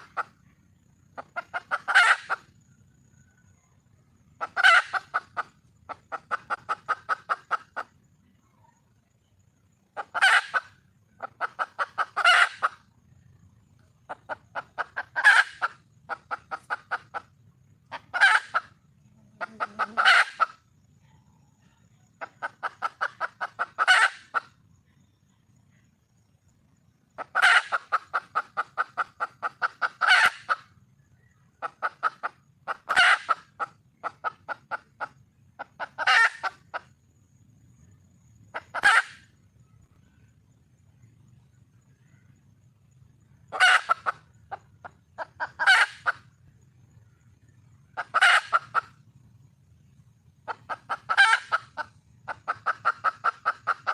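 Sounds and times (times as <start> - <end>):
hen clucking: 0.0 - 2.5, 4.4 - 7.9, 10.0 - 12.9, 14.1 - 20.6, 22.2 - 24.6, 27.2 - 30.7, 31.6 - 36.9, 38.5 - 39.2, 43.5 - 46.2, 48.0 - 49.0, 50.5 - 53.9.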